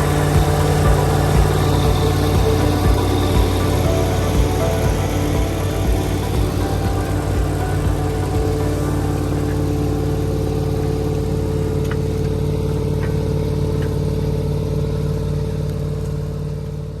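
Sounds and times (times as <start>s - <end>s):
diesel engine running steadily: 0.0s - 17.0s.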